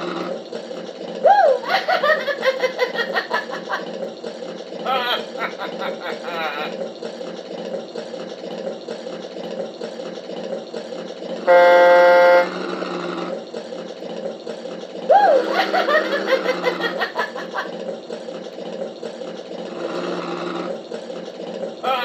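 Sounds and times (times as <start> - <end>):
recorded laughing effect: 1.2 - 6.9, 15.0 - 18.0
tug horn blast: 11.4 - 13.4.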